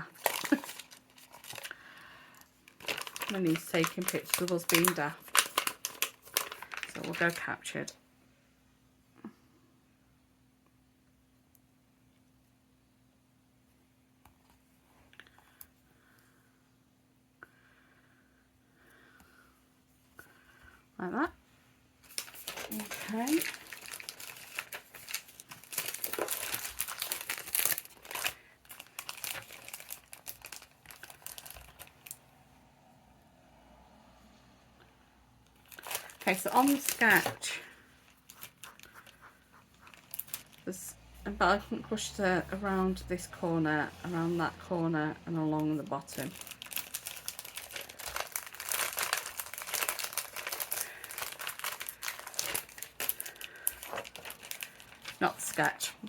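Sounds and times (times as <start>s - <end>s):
paper crinkling and rustling: 0.0s - 7.6s, 22.0s - 32.2s, 35.6s - 40.8s, 45.5s - 56.0s.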